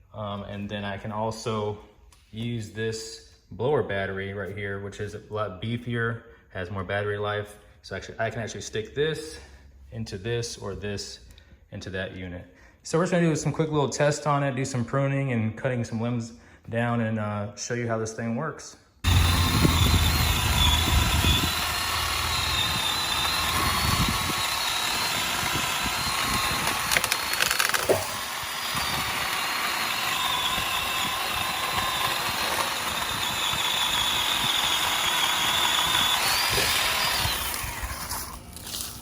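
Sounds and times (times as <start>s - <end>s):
electric chainsaw whining: 19.0s - 39.0s.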